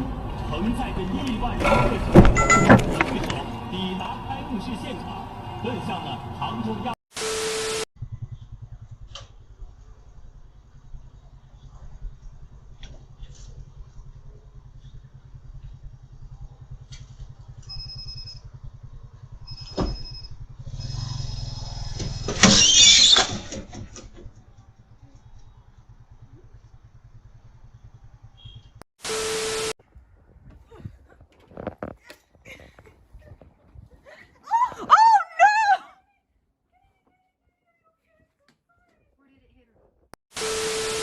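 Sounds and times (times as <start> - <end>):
vehicle engine running: 0.0 - 7.0, 8.0 - 30.6.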